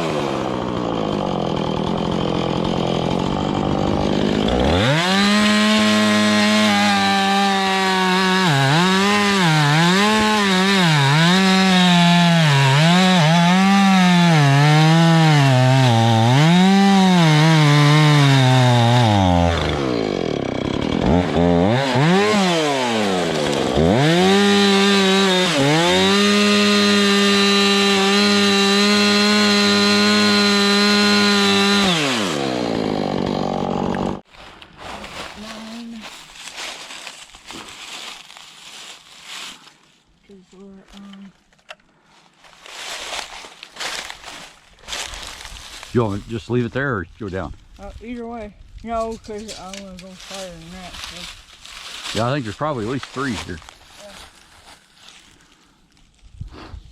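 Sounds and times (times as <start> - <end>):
chainsaw cutting log: 0.0 - 34.3, 36.4 - 39.6, 51.8 - 54.1.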